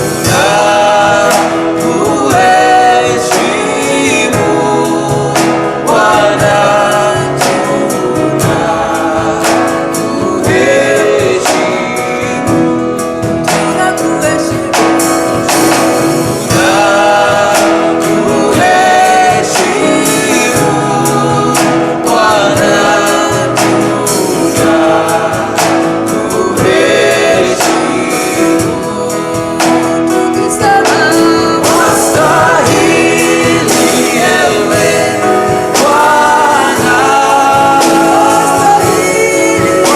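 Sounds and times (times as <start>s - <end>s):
band playing: 0.0s - 39.9s
steady drum beat: 0.0s - 39.9s
voices singing together: 0.0s - 39.9s.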